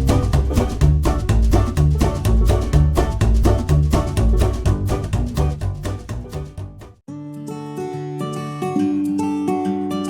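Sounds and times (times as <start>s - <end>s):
plucked double bass and strings: 0.0s - 7.0s.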